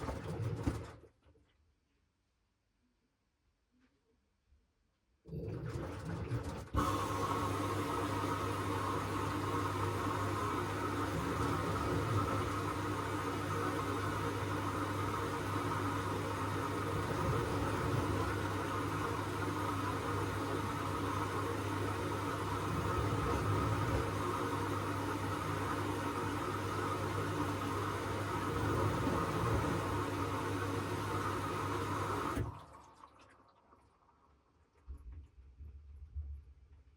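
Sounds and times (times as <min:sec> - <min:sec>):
washing machine humming: 0:05.3 - 0:33.3.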